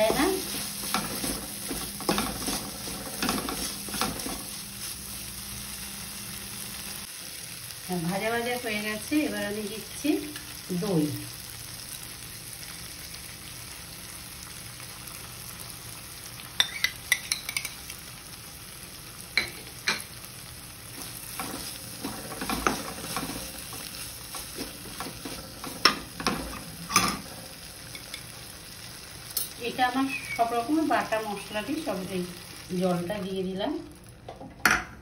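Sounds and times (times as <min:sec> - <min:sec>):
spatula scraping a pan: 0:00.0 - 0:04.9, 0:20.9 - 0:27.2
spice paste sizzling in oil: 0:00.0 - 0:34.2.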